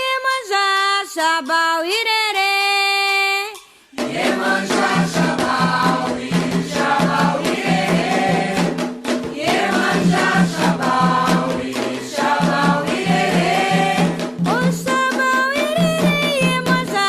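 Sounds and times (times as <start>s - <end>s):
hand-drum strokes: 3.9s - 17.0s
chorus of voices singing: 4.0s - 15.0s.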